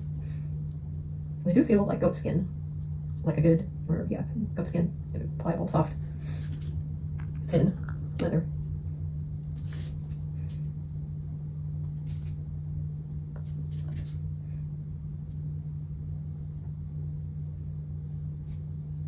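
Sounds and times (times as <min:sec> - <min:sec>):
low machine hum: 0:00.0 - 0:19.0
faint handwork rustles: 0:09.5 - 0:11.0, 0:13.4 - 0:14.2.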